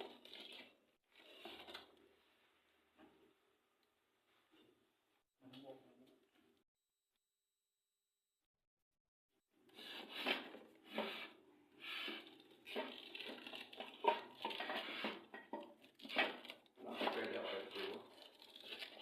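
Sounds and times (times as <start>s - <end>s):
packaging rustling and tearing: 12.2s - 14.7s, 15.8s - 19.0s.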